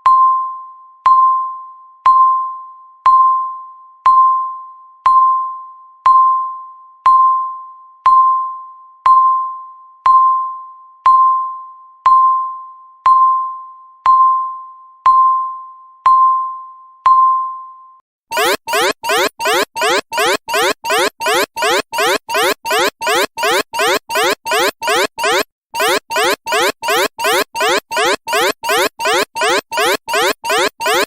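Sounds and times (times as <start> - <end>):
electronic timer ding: 18.3 - 31.0.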